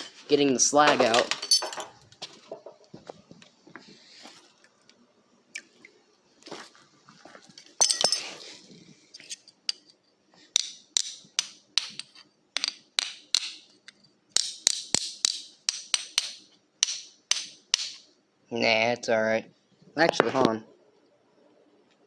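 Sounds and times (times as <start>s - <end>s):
metal knocking and clinking: 0.8s - 2.0s, 7.6s - 8.3s.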